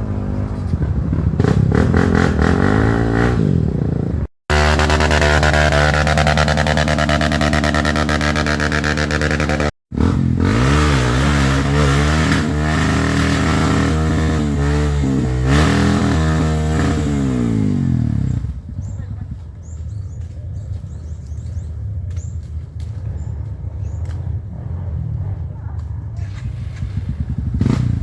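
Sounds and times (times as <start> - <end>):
dirt bike engine revving: 0.1 - 18.6, 26.2 - 28.0.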